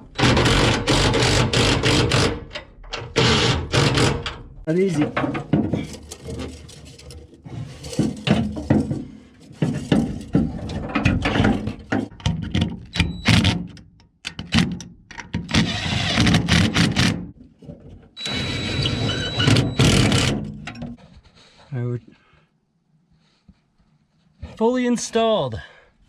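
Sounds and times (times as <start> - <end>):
knocks and clanks on metal: 0.0 - 17.8, 19.3 - 21.0.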